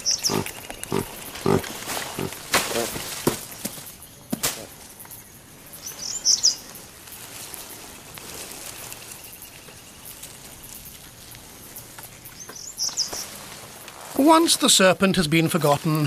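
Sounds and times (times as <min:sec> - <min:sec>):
bird chirping: 0:00.0 - 0:04.4, 0:05.1 - 0:06.9, 0:11.7 - 0:13.4
insects: 0:00.0 - 0:16.0.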